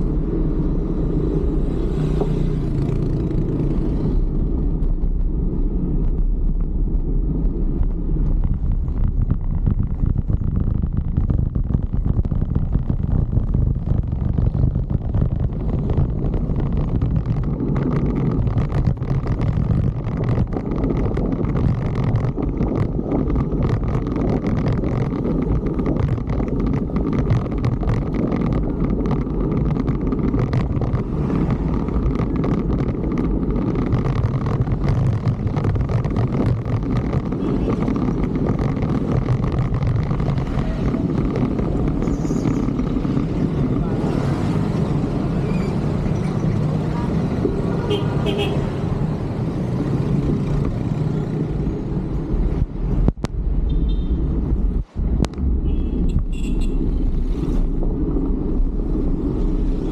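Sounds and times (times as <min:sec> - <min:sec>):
road and traffic noise: 0:00.0 - 0:59.9
wind on microphone: 0:00.0 - 0:59.9
short crackles: 0:07.8 - 0:44.0.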